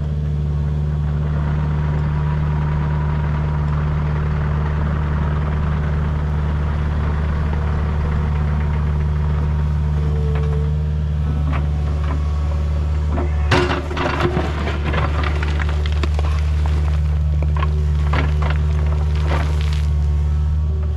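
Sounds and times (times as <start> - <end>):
engine running steadily: 0.0 - 20.9.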